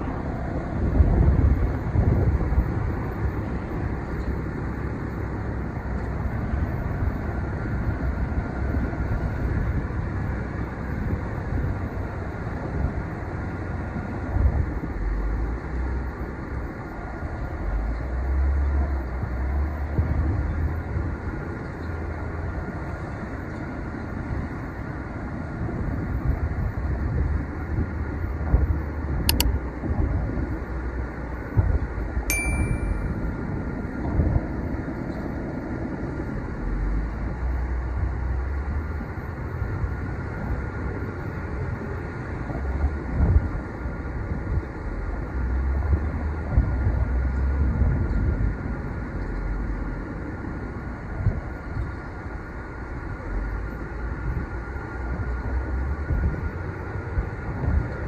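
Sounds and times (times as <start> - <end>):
ship engine low rumble: 0.0 - 58.0.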